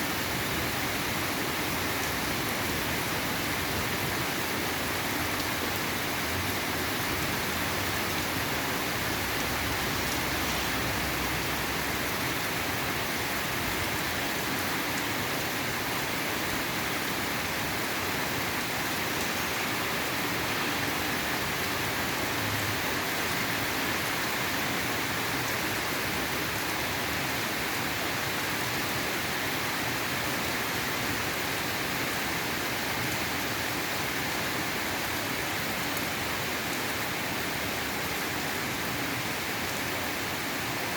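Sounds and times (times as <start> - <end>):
steady rainfall: 0.0 - 40.9.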